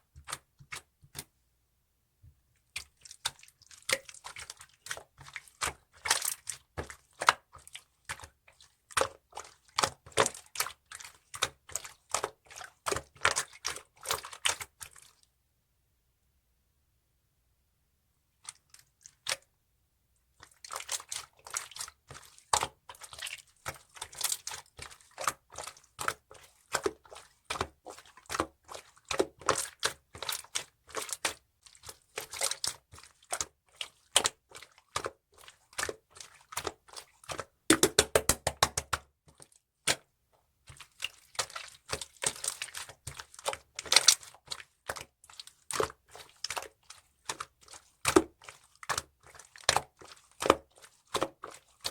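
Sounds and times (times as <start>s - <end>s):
slime squishing with sticky clicks: 35.8s - 40.1s.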